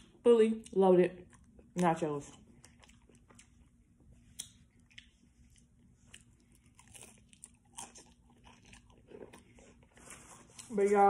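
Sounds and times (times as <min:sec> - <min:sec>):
chewing crunchy taco shell: 0:00.6 - 0:10.7
loud crunching bite: 0:06.1 - 0:09.4.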